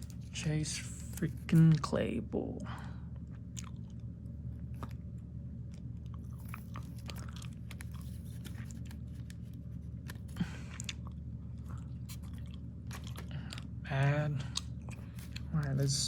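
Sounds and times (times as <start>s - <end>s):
low hum: 0.0s - 16.0s
cards clicking and rustling: 6.1s - 10.7s.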